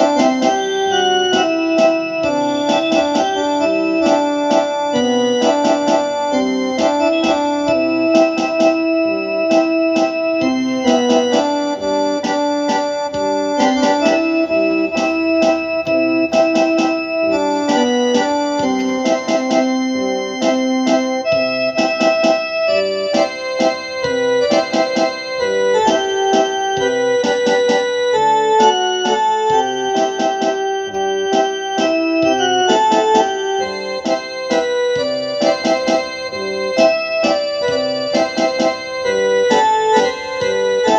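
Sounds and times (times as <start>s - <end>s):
instrumental music with beat: 0.0s - 40.9s.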